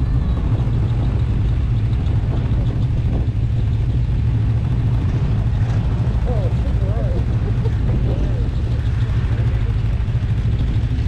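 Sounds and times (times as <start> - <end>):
snowmobile engine droning: 0.0 - 11.0.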